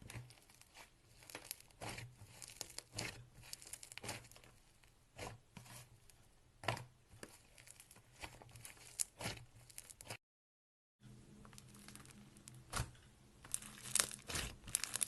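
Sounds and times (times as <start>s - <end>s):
slime crackling and popping: 0.0s - 4.6s, 7.3s - 10.2s, 11.5s - 15.0s.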